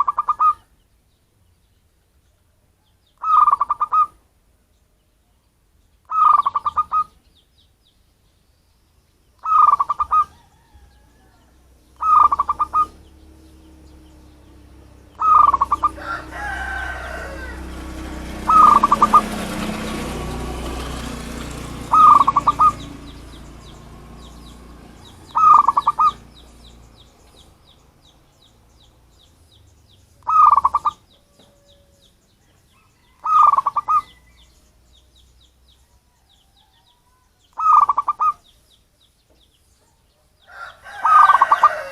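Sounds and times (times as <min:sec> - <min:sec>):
dove cooing: 0:00.0 - 0:00.7, 0:03.2 - 0:04.2, 0:06.1 - 0:07.2, 0:09.4 - 0:27.4, 0:30.2 - 0:32.0, 0:32.9 - 0:34.3, 0:37.5 - 0:38.4, 0:39.8 - 0:41.9
birds chirping: 0:00.0 - 0:41.9
rushing background noise: 0:09.6 - 0:31.1.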